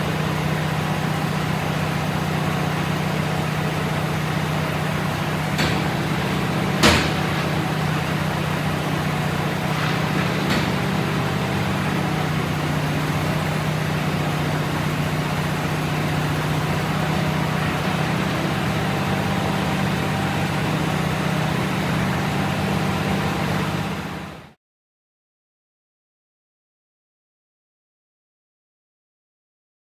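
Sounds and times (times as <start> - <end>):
engine idling: 0.0 - 24.5.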